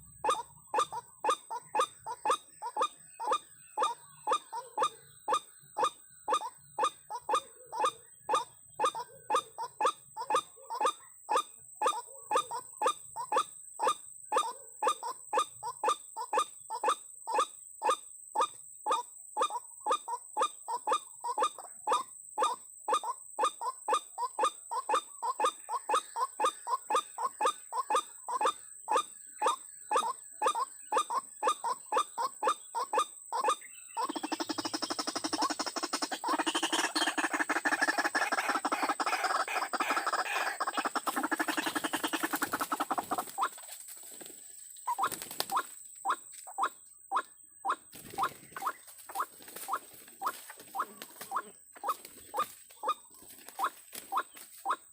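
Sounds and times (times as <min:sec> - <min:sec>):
waterhen calling: 0:23.6 - 0:43.7, 0:44.9 - 0:54.8.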